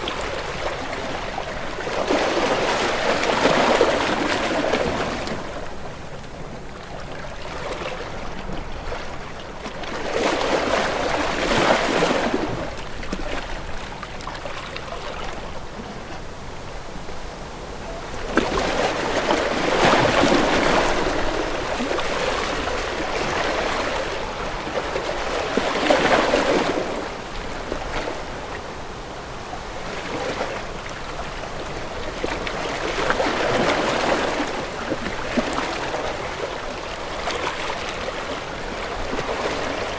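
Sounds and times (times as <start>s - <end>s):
sea waves washing: 9.7s - 39.9s.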